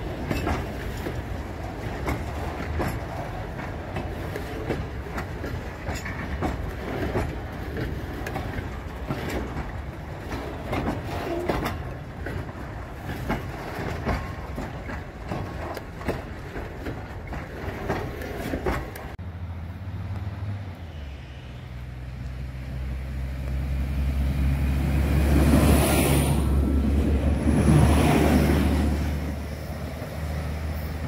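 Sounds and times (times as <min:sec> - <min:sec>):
freight wagons clattering past: 0:00.0 - 0:19.2
diesel railcar engine drone: 0:00.0 - 0:31.0.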